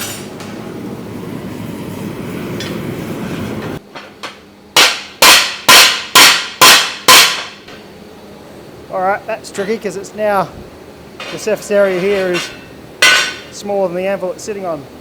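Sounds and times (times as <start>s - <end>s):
hammer striking steel on anvil: 4.2s - 7.7s, 11.2s - 13.5s.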